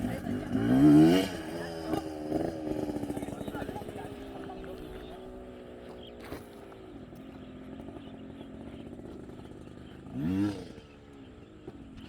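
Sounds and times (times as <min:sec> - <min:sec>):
engine revving: 0:00.0 - 0:04.7, 0:08.7 - 0:11.0
motocross bike engine idling: 0:00.0 - 0:12.0.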